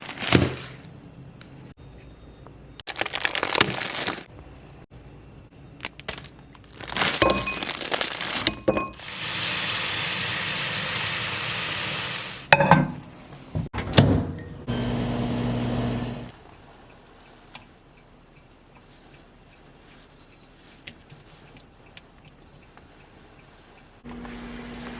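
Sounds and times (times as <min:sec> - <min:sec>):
noodle packet crinkling: 0:02.9 - 0:04.3, 0:05.9 - 0:08.7.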